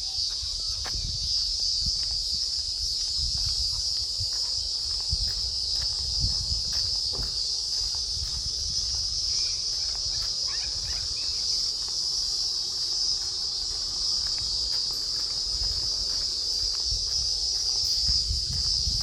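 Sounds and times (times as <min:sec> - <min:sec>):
insect chorus droning: 0:00.0 - 0:19.0
faint chirps: 0:09.2 - 0:14.3.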